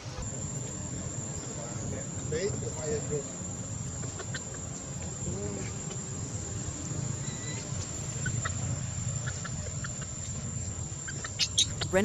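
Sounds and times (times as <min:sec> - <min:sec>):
insect drone: 0:00.0 - 0:12.0.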